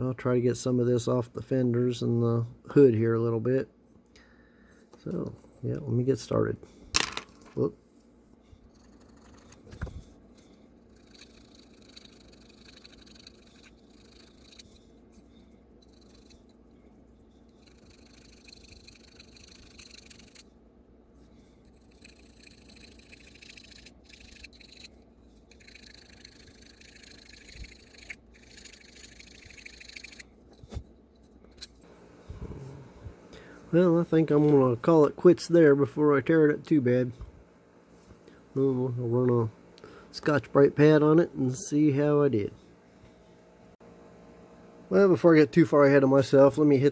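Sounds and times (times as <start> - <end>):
tool scraping metal: 8.4 - 20.5, 21.2 - 31.8.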